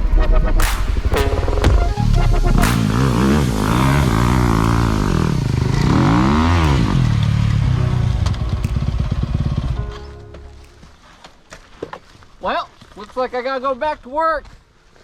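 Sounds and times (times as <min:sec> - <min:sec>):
dirt bike engine revving: 0:01.1 - 0:10.0.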